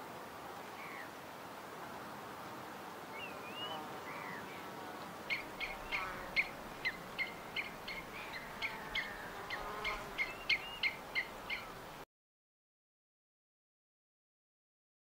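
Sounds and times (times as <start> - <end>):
steady hiss: 0.0 - 12.0
songbird chirping: 3.1 - 11.8.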